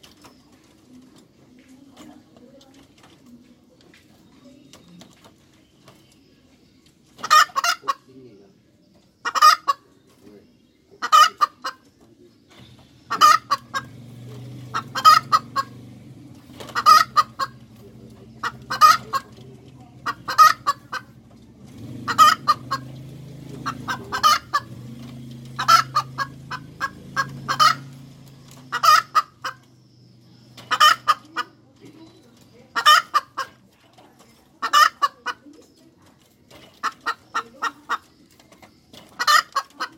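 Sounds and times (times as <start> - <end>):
hen clucking: 0.0 - 39.9.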